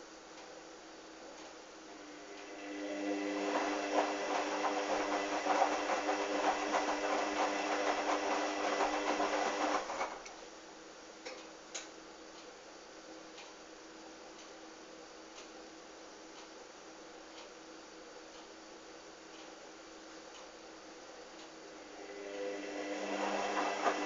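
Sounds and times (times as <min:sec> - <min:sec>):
washing machine motor humming: 0:01.8 - 0:10.4, 0:21.6 - 0:24.0.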